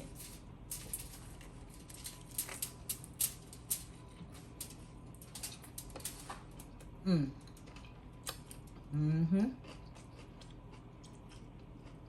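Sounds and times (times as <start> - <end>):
chewing crunchy sandwich: 6.6 - 12.0.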